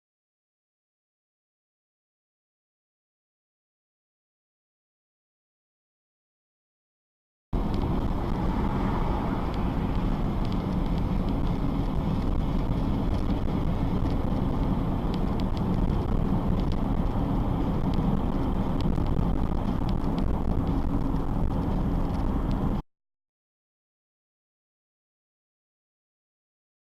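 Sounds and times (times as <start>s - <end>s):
car driving rumble: 7.6s - 22.8s.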